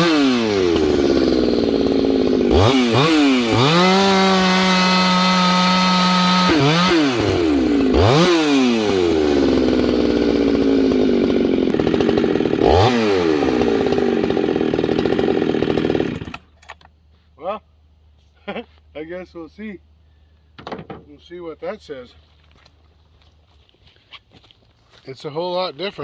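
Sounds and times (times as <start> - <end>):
chainsaw engine revving: 0.0 - 16.6.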